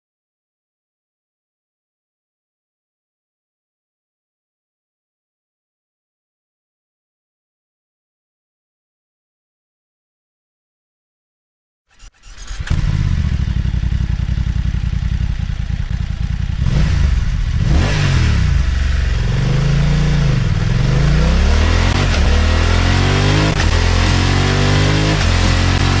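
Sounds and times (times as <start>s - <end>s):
motorcycle engine revving: 11.9s - 26.0s
motorcycle engine starting and idling: 11.9s - 26.0s.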